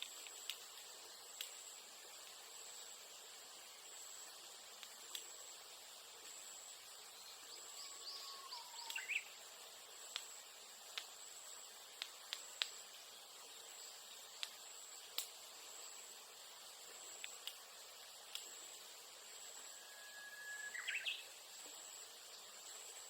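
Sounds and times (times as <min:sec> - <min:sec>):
bamboo bonfire crackling: 0:00.0 - 0:08.0, 0:08.7 - 0:23.0
high insect drone: 0:00.0 - 0:23.0
bird singing: 0:06.9 - 0:09.4, 0:19.6 - 0:21.4.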